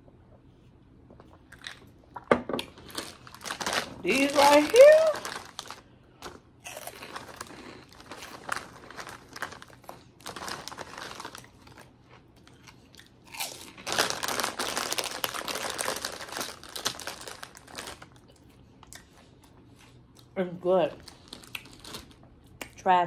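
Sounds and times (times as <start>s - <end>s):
plastic bag crinkling: 2.7s - 18.3s, 21.0s - 22.2s
crunchy snack chewing: 5.2s - 20.3s, 21.1s - 22.2s.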